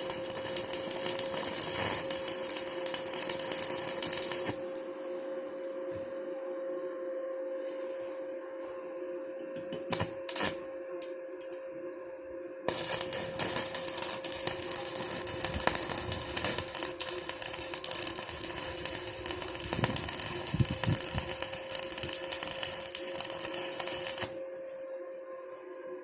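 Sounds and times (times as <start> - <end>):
arc welding crackle: 0.0 - 5.1, 9.8 - 11.6, 12.7 - 24.8
steady hum: 0.0 - 25.2.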